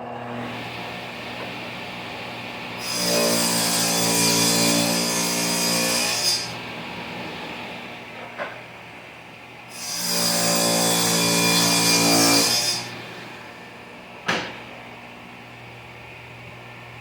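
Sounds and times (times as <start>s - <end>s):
table saw cutting wood: 2.7s - 7.6s, 9.7s - 13.6s.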